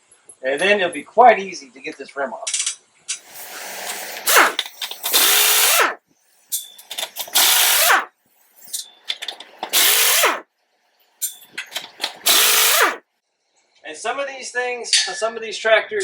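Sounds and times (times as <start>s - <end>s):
pneumatic impact wrench bursts: 3.2s - 10.4s, 11.2s - 13.0s.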